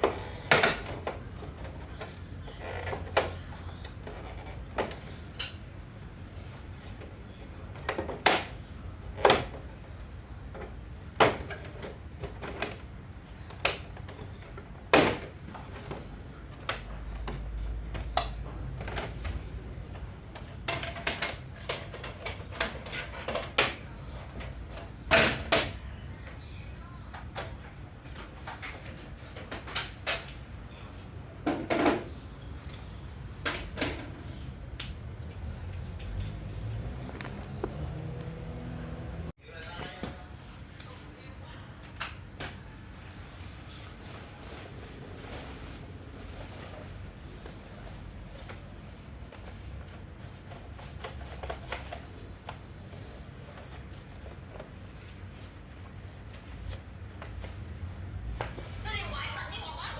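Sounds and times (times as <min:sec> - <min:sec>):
tools clicking and clattering: 0:35.6 - 0:37.6.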